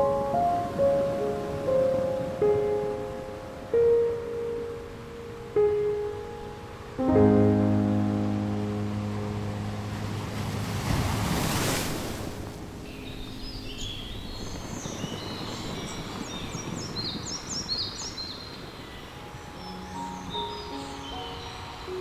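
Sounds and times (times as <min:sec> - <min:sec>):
steady surf: 0:00.0 - 0:22.0
ocean wave washing in: 0:07.0 - 0:19.5
songbirds chirping: 0:12.4 - 0:22.0.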